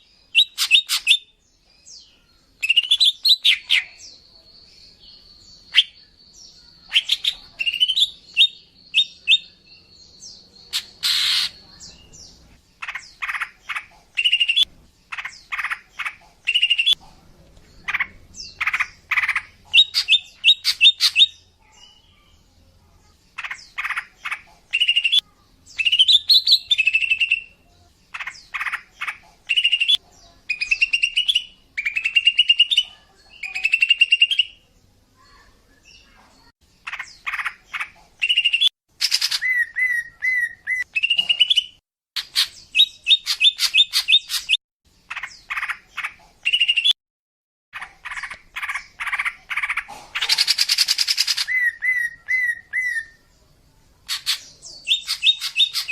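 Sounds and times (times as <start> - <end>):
bird chattering and whistling: 0.4 - 1.3, 2.6 - 4.0, 6.9 - 9.6, 10.7 - 12.1, 12.8 - 17.0, 17.8 - 21.4, 23.4 - 25.2, 28.1 - 34.6, 36.8 - 47.0, 47.8 - 53.2, 54.1 - 55.9
harsh buzzy bird call: 10.7 - 11.6.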